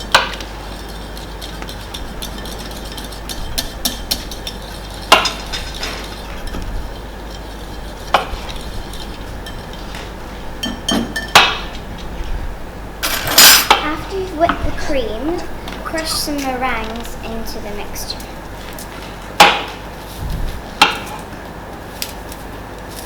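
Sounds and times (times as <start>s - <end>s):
hand whisk beating in bowl: 0.0s - 10.0s.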